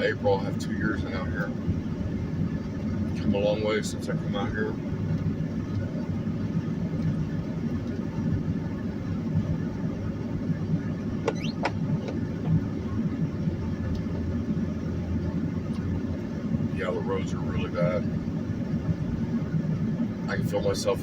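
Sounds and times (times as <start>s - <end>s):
car driving on icy road: 0.0s - 21.0s
high squeaks: 11.3s - 11.7s.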